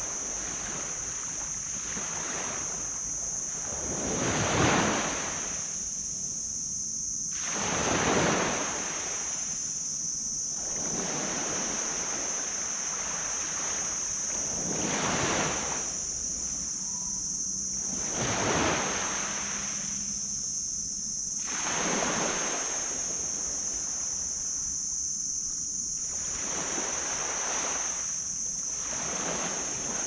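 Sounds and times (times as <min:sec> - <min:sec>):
small waves washing on sand: 0:00.0 - 0:05.8, 0:07.3 - 0:09.6, 0:10.5 - 0:16.6, 0:21.4 - 0:24.2, 0:26.0 - 0:30.0
steady high-pitched hiss: 0:00.0 - 0:30.0.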